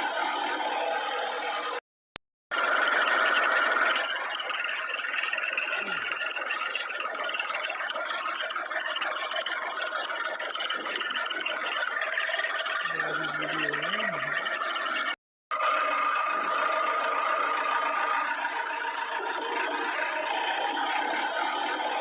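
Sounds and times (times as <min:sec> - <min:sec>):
heavy diesel machinery running: 0:00.0 - 0:01.8, 0:02.5 - 0:22.0
low wavering tone: 0:03.2 - 0:15.0.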